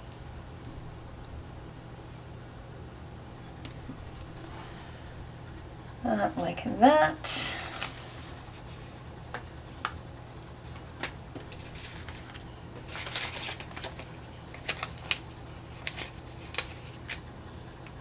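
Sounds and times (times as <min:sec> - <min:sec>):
paper rustling: 0:07.5 - 0:10.0, 0:10.6 - 0:17.2.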